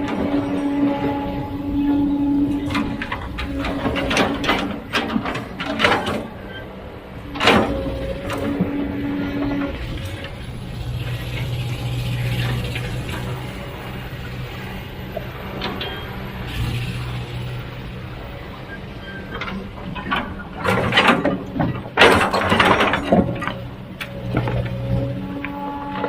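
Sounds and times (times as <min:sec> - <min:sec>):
heavy machinery engine humming: 0:00.0 - 0:26.0
metallic clanks and knocks: 0:02.4 - 0:06.7, 0:07.3 - 0:13.6, 0:19.3 - 0:26.0.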